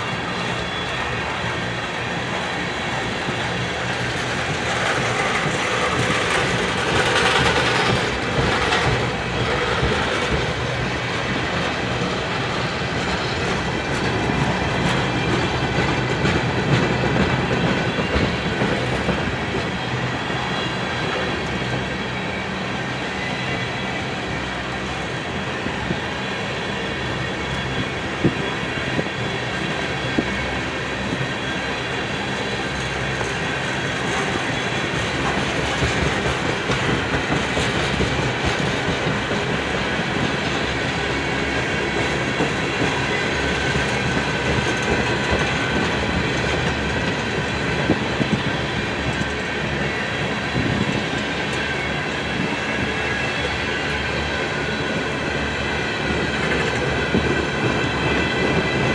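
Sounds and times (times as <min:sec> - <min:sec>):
train wheels clacking over rail joints: 0:00.0 - 0:24.0, 0:24.6 - 0:58.9
high wheel squeal: 0:00.0 - 0:58.9.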